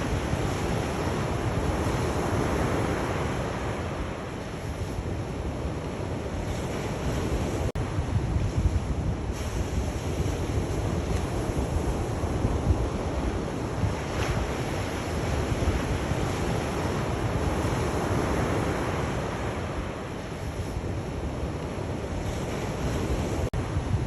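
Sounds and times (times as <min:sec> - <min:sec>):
waves washing in: 0:00.0 - 0:24.0.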